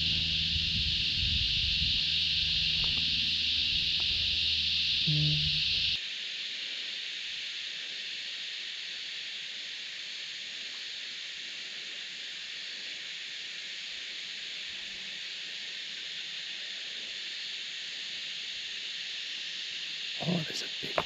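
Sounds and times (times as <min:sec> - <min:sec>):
low rumble: 0:00.0 - 0:06.0
cicada chorus droning: 0:00.0 - 0:21.0.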